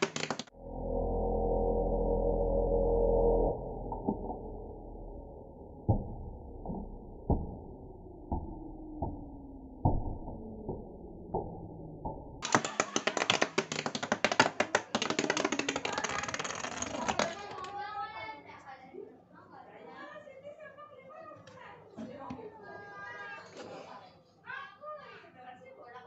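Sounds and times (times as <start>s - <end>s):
fast clattering rattle: 12.4s - 17.8s.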